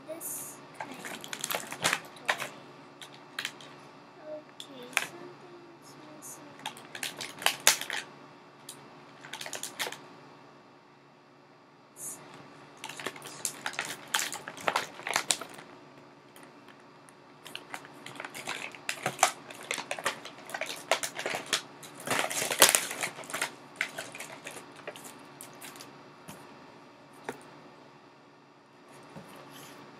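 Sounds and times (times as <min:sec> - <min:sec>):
plastic and paper crinkling: 0:00.8 - 0:03.7, 0:06.6 - 0:08.0, 0:09.2 - 0:10.0, 0:12.8 - 0:15.7, 0:17.5 - 0:25.9.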